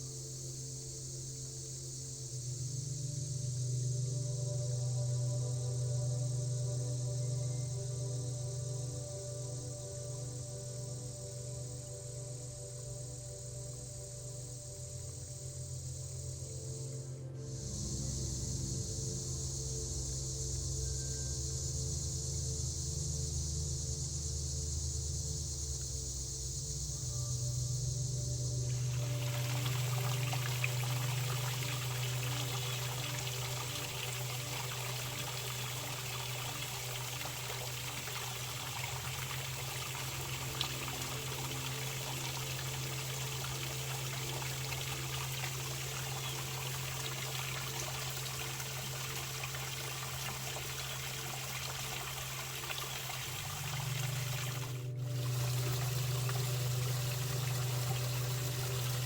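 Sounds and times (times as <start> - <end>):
low hum: 17.0 - 59.0
running water trickling: 28.6 - 59.0.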